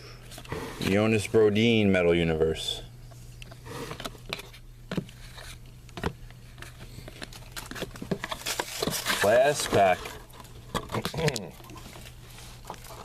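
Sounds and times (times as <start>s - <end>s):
steady low hum: 0.0s - 13.0s
cards clicking and wrappers crinkling: 3.9s - 13.0s.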